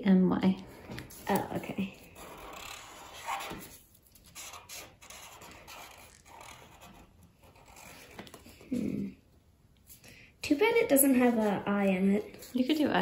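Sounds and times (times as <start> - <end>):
marker scratching on paper: 1.0 - 8.7, 10.7 - 13.0.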